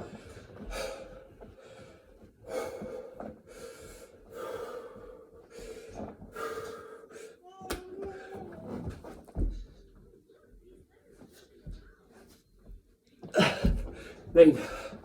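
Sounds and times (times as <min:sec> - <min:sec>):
man breathing hard and gasping: 0:00.4 - 0:07.4.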